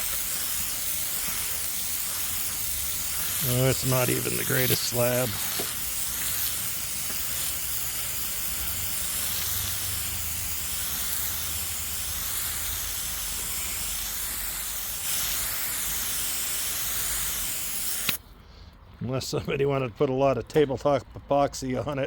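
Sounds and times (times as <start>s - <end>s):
bandsaw running: 0.0s - 10.4s.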